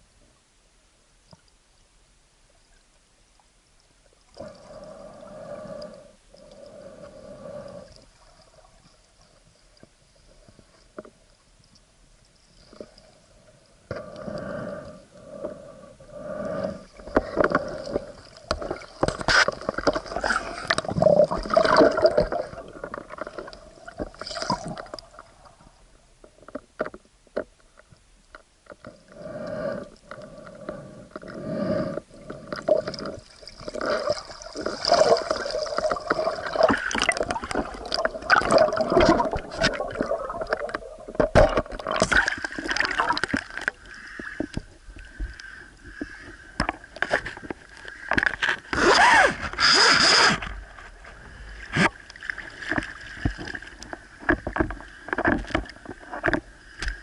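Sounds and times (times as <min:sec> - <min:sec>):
water sloshing and gurgling: 0:03.4 - 0:57.0
clicks underwater: 0:17.0 - 0:25.2, 0:32.2 - 0:57.0.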